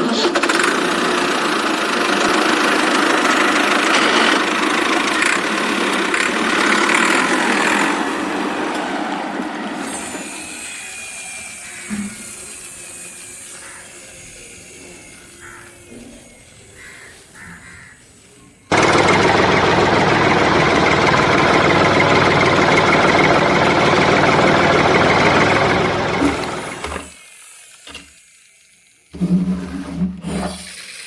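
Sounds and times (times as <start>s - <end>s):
mechanical engine running noise: 0.0s - 8.5s, 18.7s - 27.2s.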